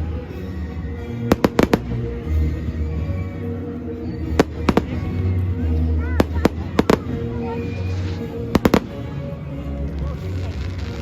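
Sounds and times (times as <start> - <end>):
fireworks cracking bangs: 1.3 - 2.0, 4.4 - 5.2, 8.6 - 9.0.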